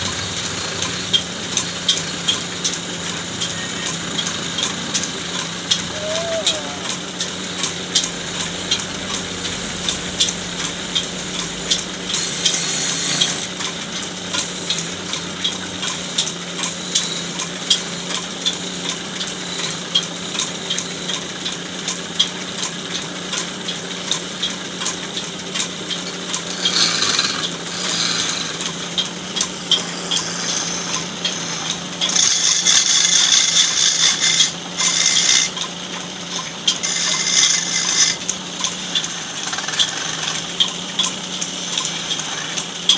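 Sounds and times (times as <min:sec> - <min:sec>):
wood cutting noise: 0:00.0 - 0:42.9
woodworking machine humming: 0:00.0 - 0:42.9.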